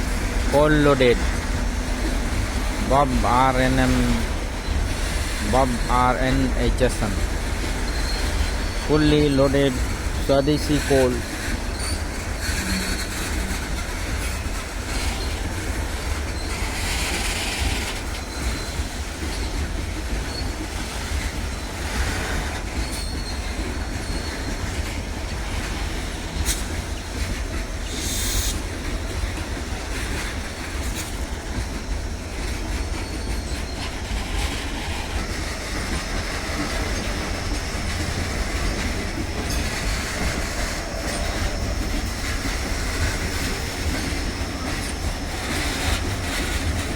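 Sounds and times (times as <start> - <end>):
train wheels rumbling on rail: 0.0 - 46.9
high wheel squeal: 0.1 - 15.5, 20.2 - 25.0, 27.8 - 28.7, 30.9 - 46.9.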